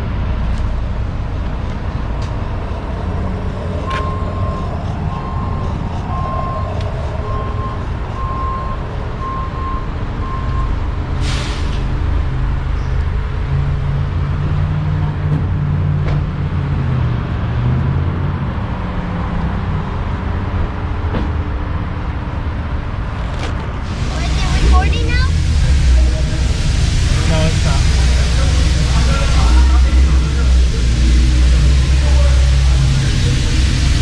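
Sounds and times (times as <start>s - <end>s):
car engines idling: 0.0s - 14.4s, 19.4s - 34.0s
electronic beeping: 3.2s - 10.7s
burst of hiss: 11.2s - 11.9s.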